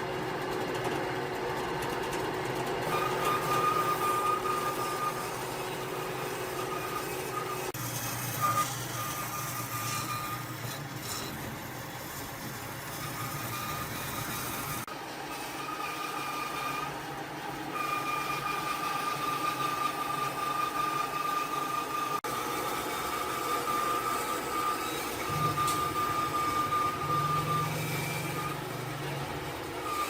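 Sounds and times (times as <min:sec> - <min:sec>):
power tool whine: 0:02.6 - 0:30.0.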